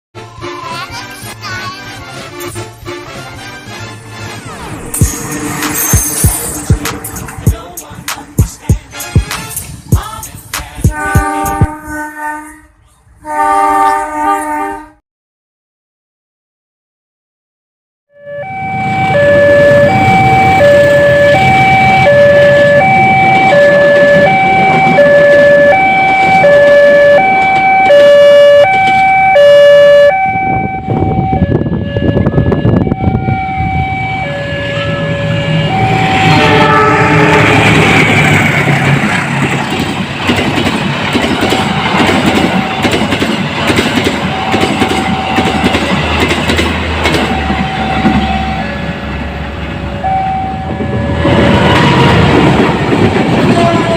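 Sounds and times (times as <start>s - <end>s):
train passing with rushing noise: 0.2s - 14.9s, 18.2s - 53.9s
level crossing two-tone alarm: 18.1s - 36.9s, 44.2s - 46.0s, 47.1s - 49.0s, 49.9s - 51.3s.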